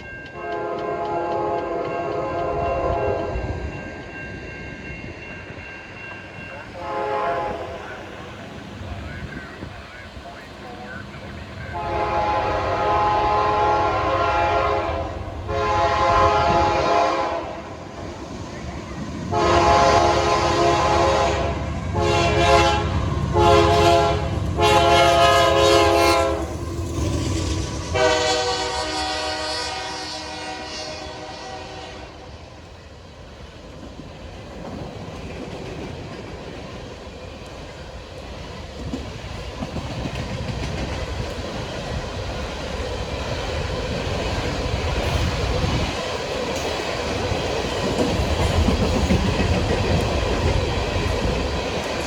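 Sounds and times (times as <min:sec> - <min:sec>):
low rumble of locomotive engine: 0:00.0 - 0:52.0
train wheel noise: 0:00.0 - 0:52.0
locomotive air horn blasts: 0:00.4 - 0:03.4, 0:06.8 - 0:07.8, 0:11.7 - 0:17.6, 0:19.3 - 0:26.6, 0:27.4 - 0:32.3.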